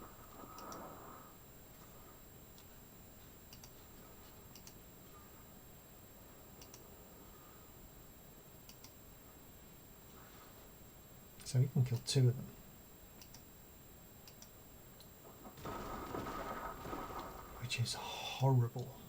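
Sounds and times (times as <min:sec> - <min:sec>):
faint computer mouse clicks: 0:00.5 - 0:00.9, 0:03.5 - 0:03.8, 0:04.5 - 0:04.8, 0:06.6 - 0:06.8, 0:08.7 - 0:09.0, 0:13.2 - 0:13.5, 0:14.2 - 0:15.1.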